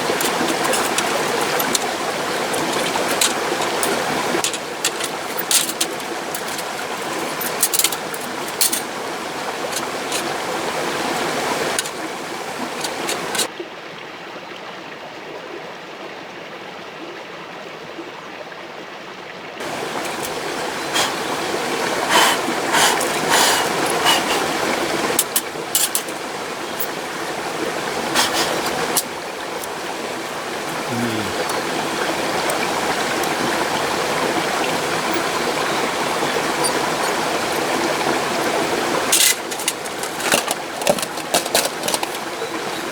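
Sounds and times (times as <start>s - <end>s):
stream rushing: 0.0s - 13.6s, 19.6s - 42.9s
sharp clicks and knocks: 25.1s - 26.2s, 39.1s - 42.2s.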